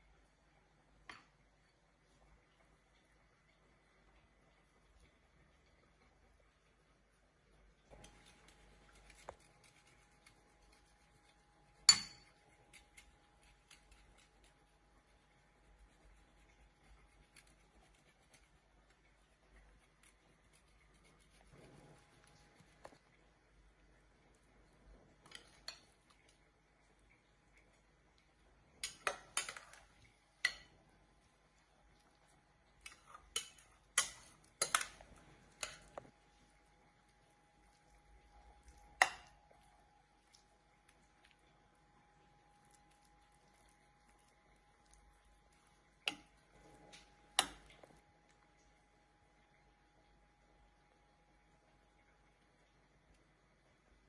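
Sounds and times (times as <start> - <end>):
faint steady hum: 0.0 - 54.0
utensils and dishes clicking: 32.8 - 36.0.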